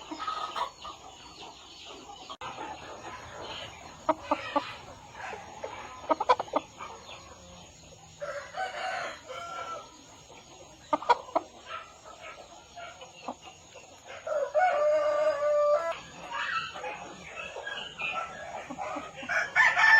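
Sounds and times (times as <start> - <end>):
chickens clucking: 0.0 - 19.9
rooster crowing: 8.2 - 9.9, 14.2 - 16.0, 19.2 - 19.9.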